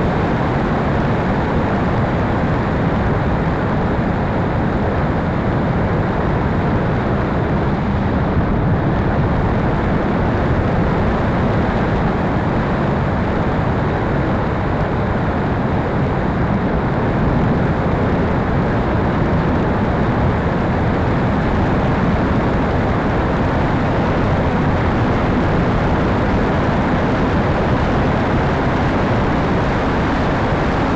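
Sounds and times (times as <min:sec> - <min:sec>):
wind noise on microphone: 0:00.0 - 0:30.9.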